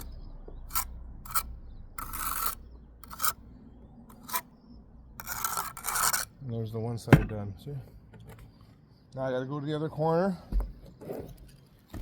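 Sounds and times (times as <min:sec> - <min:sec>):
trowel scraping mortar on brick: 0:00.0 - 0:03.4, 0:04.1 - 0:04.6, 0:05.2 - 0:06.4.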